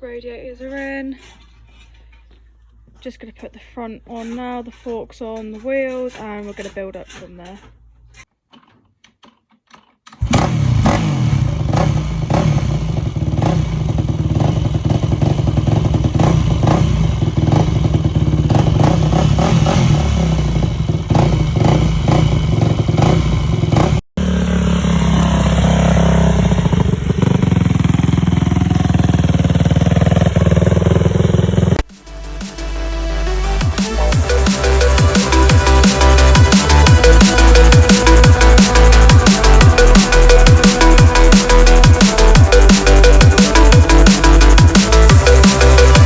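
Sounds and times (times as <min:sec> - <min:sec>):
two-stroke motorcycle engine running: 0:10.2 - 0:32.0, 0:33.6 - 0:46.0.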